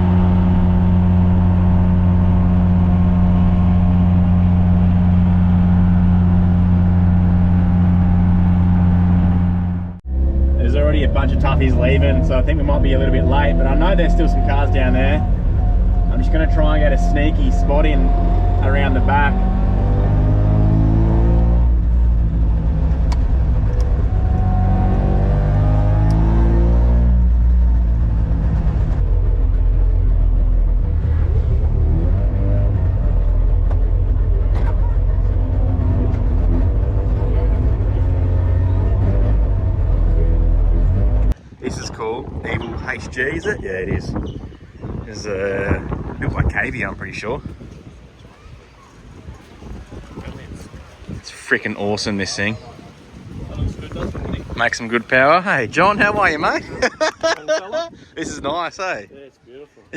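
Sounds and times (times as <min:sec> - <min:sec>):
small engine running steadily: 0:00.0 - 0:16.0
two-stroke engine accelerating: 0:00.0 - 0:41.4.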